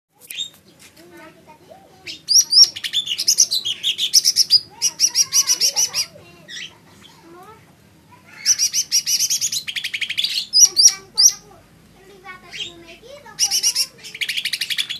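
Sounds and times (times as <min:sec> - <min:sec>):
bird chirping high and sharp: 0:00.2 - 0:00.6, 0:02.1 - 0:06.8, 0:08.3 - 0:11.5, 0:12.5 - 0:14.9.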